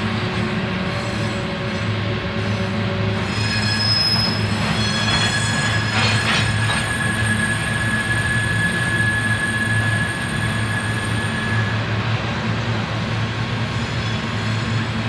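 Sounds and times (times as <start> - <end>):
freight train rumbling past: 0.0 - 15.0
train cars clanking: 0.7 - 11.6
high wheel squeal: 2.4 - 12.0, 13.6 - 15.0.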